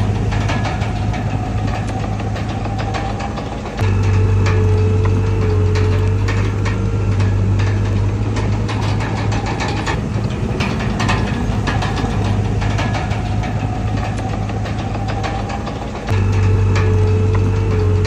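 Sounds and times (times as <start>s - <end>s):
bulldozer diesel engine running: 0.0s - 18.0s
sharp metal clanks: 0.0s - 18.0s.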